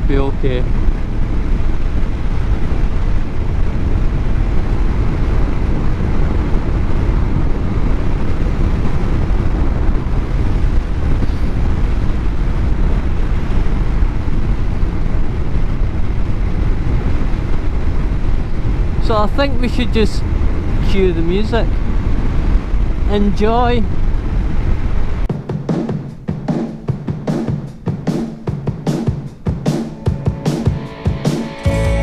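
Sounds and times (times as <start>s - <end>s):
road rumble: 0.0s - 25.4s
wind rush: 0.0s - 32.0s.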